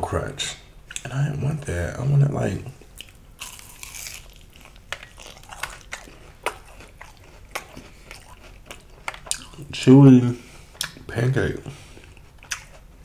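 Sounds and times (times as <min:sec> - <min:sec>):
chewing with crisp crackles: 0:02.7 - 0:13.0
biting into fried food: 0:03.0 - 0:09.7.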